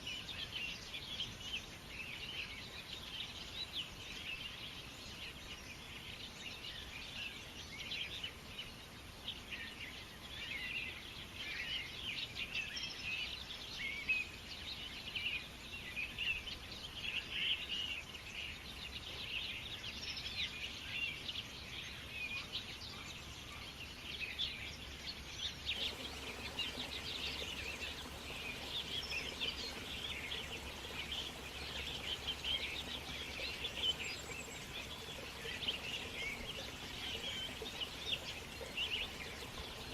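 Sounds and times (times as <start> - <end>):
outdoor background noise: 0.0 - 39.9
birds chirping and calling: 25.7 - 39.9.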